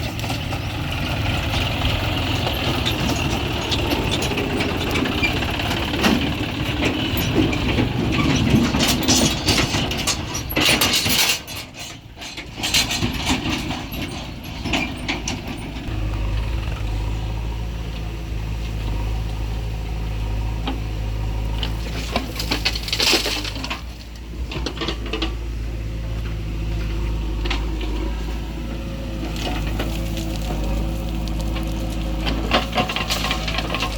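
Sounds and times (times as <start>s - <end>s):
diesel engine drone: 0.0s - 33.9s
soil and stones hitting metal: 1.4s - 16.4s, 21.6s - 25.4s, 29.2s - 33.9s.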